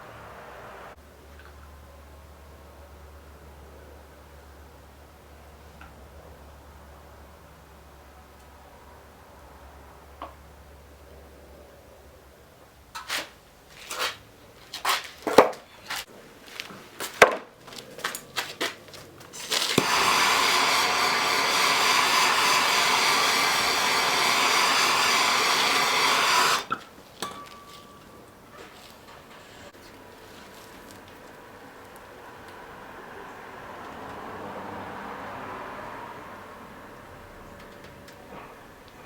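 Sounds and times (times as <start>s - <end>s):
hand-held blower hissing: 19.3s - 26.8s.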